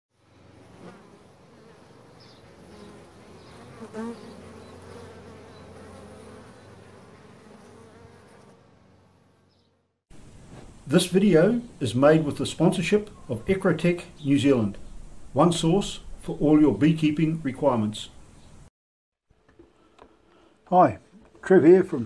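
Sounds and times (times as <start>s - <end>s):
bees buzzing: 0.2s - 9.9s.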